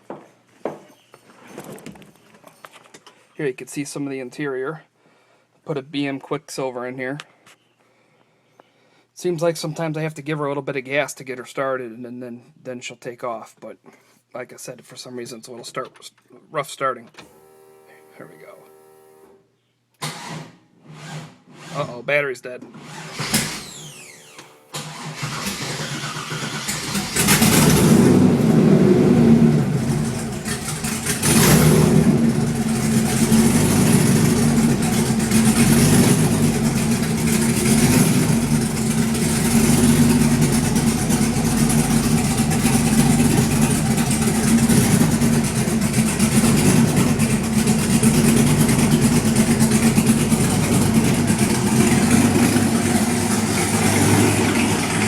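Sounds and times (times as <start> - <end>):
car engine starting: 22.9 - 55.0
engine revving: 24.8 - 55.0
engine idling rough: 24.9 - 55.0.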